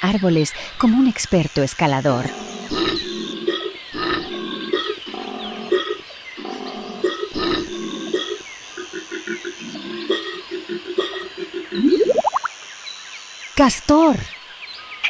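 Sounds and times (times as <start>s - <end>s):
koala bellowing: 2.1s - 12.1s.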